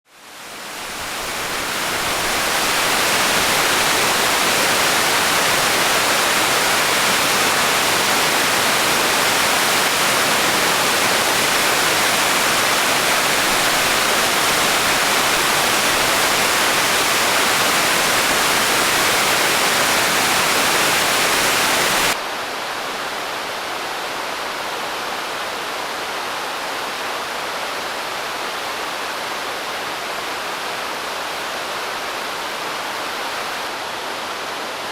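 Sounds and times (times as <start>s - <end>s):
waterfall rushing: 0.2s - 34.9s.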